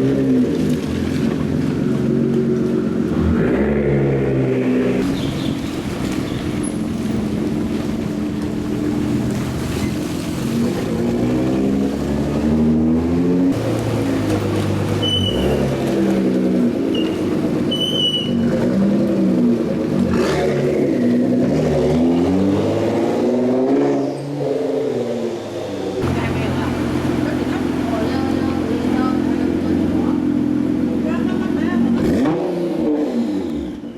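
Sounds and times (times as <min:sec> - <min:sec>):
car engines revving: 0:00.0 - 0:33.9.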